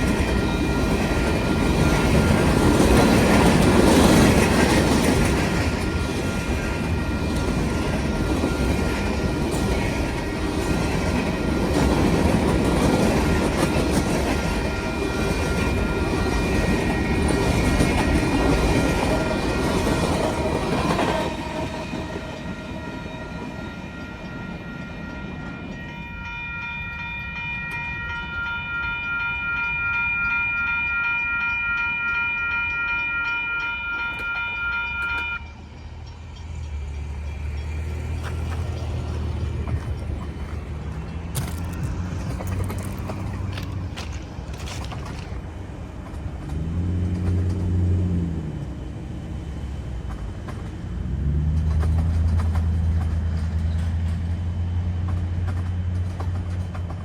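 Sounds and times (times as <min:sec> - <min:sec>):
train wheels clattering over rails: 0:00.0 - 0:22.8, 0:35.8 - 0:57.0
crossing warning bell ringing: 0:00.0 - 0:45.3.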